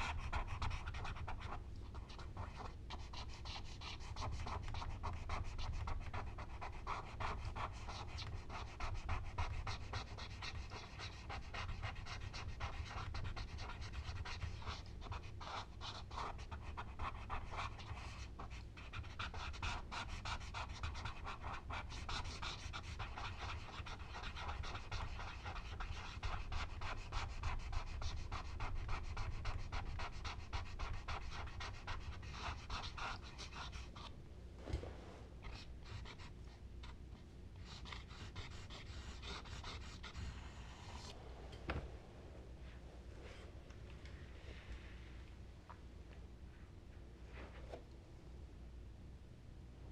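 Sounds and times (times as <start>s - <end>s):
charcoal rubbing on paper: 18.8s - 34.1s, 37.6s - 41.1s.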